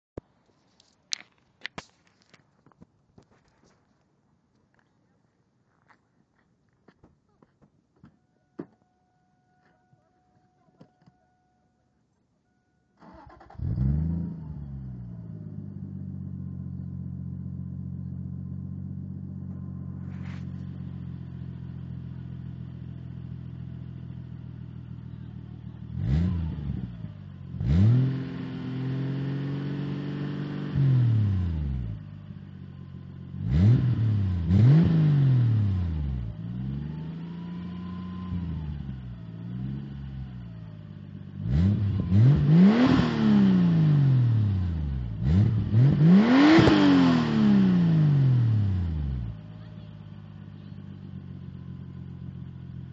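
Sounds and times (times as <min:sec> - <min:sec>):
car engine starting and idling: 0:12.5 - 0:52.9
engine revving: 0:13.0 - 0:49.8.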